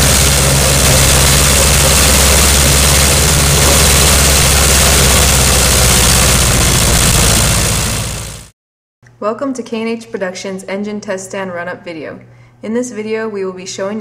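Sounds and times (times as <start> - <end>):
aircraft piston engine running: 0.0 - 8.5.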